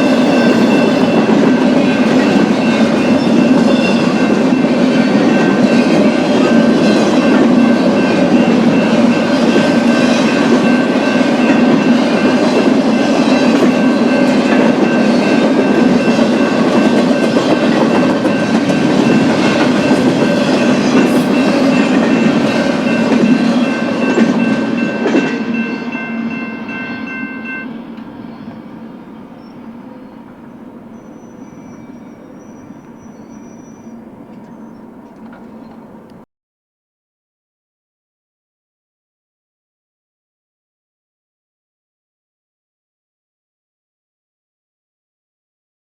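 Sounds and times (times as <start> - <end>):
steady high ringing tone: 0.0 - 35.0.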